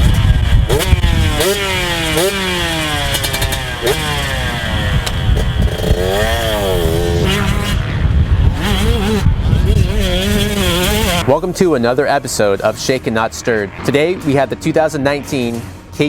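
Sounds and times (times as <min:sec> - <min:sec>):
motocross engine revving: 0:00.0 - 0:16.0.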